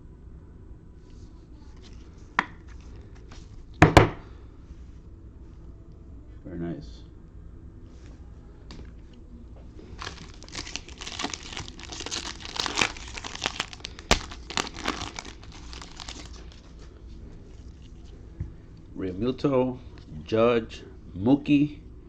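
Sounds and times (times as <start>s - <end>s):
wrapper crinkling and tearing: 9.8s - 16.8s
wrapper snap: 10.0s - 16.6s.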